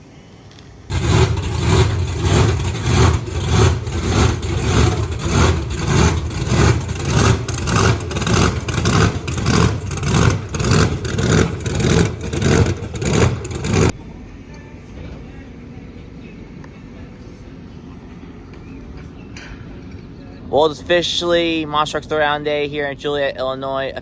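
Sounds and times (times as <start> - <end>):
engine revving in surges: 0.9 - 14.0.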